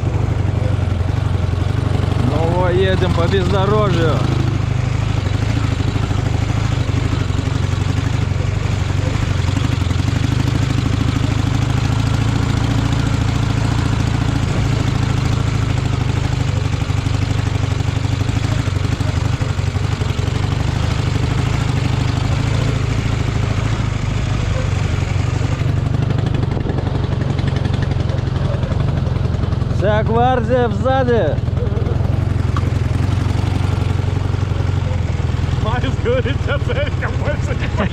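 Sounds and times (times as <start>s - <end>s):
vehicle engine running: 0.0s - 37.9s
vehicle riding over rough ground: 0.0s - 37.9s.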